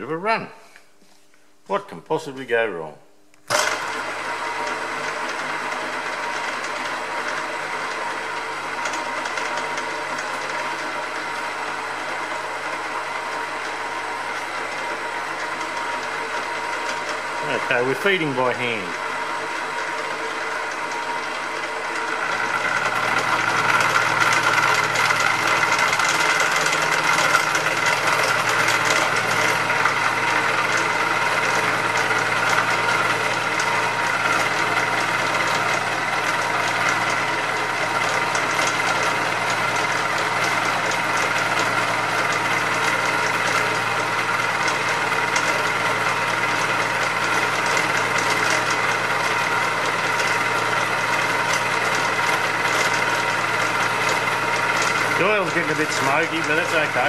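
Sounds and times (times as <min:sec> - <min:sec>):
milling machine whine: 0:03.4 - 0:57.0
cutter cutting metal: 0:49.9 - 0:57.0.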